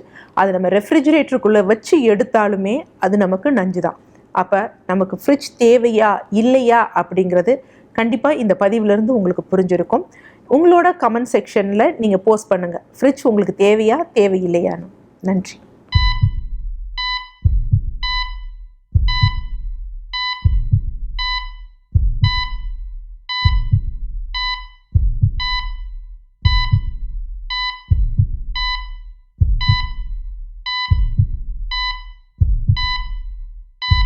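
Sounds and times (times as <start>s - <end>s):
heart monitor beep: 15.9s - 34.0s
thudding heartbeat: 16.0s - 34.0s.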